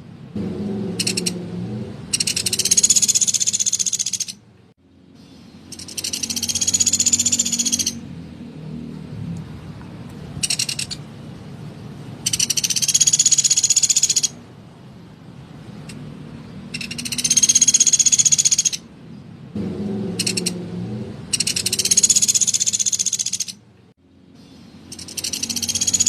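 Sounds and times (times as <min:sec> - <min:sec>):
woodpecker rattling trills: 0:00.9 - 0:01.4, 0:02.1 - 0:04.4, 0:05.2 - 0:08.0, 0:10.4 - 0:11.0, 0:12.2 - 0:14.4, 0:16.7 - 0:18.9, 0:20.1 - 0:20.6, 0:21.3 - 0:23.6, 0:24.4 - 0:26.0.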